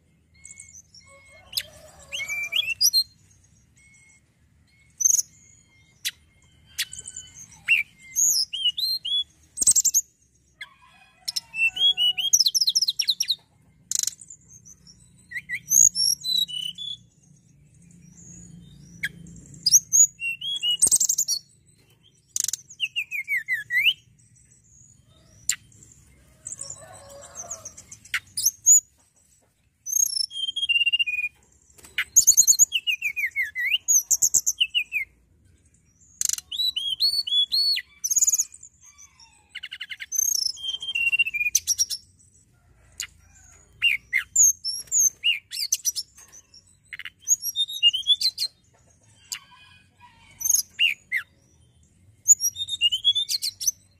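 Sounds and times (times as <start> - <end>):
bird singing whistles and trills: 0.3 - 10.1, 11.3 - 24.2, 29.9 - 35.1, 36.2 - 42.1, 43.8 - 48.6, 52.2 - 53.9.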